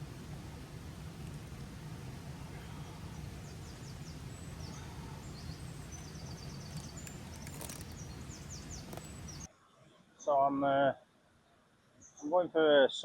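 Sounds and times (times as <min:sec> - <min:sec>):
bird singing high trills: 0:03.0 - 0:09.5.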